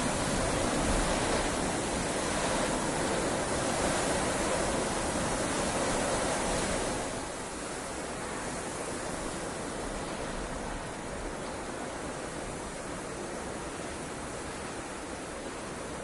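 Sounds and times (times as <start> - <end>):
heavy rain falling: 0.0 - 8.4.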